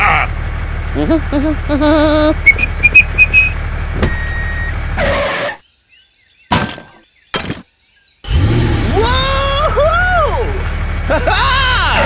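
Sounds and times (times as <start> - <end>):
low engine-like rumble: 0.0 - 5.4.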